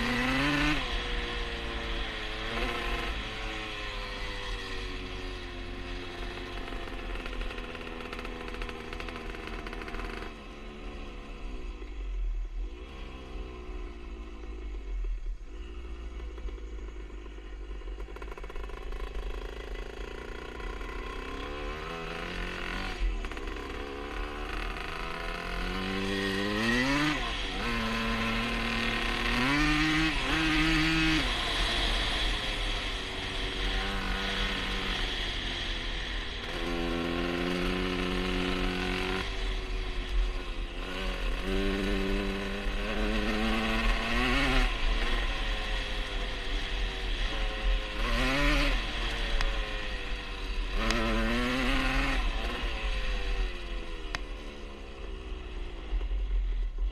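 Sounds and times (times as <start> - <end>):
two-stroke engine revving: 0.0 - 11.5, 12.6 - 56.8.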